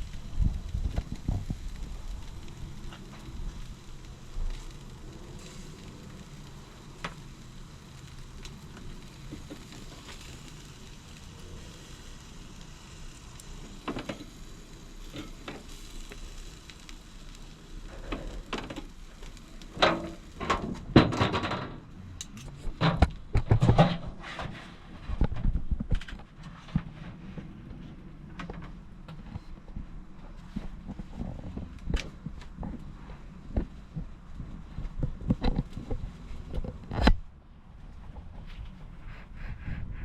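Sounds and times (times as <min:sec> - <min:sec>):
chicken sizzling on barbecue: 0:00.0 - 0:22.3
knocks and rustles: 0:19.8 - 0:37.3.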